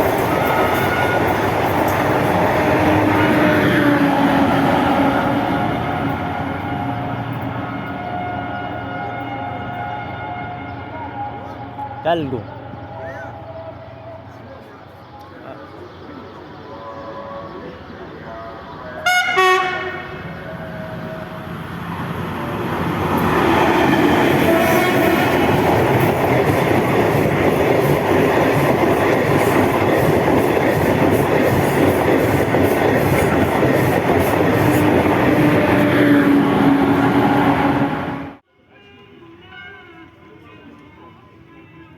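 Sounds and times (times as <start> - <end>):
train wheels clattering on rails: 0.0 - 3.1, 23.1 - 35.9
locomotive horn: 0.3 - 1.6, 2.3 - 12.0, 18.8 - 21.6, 23.4 - 26.5, 34.3 - 40.2.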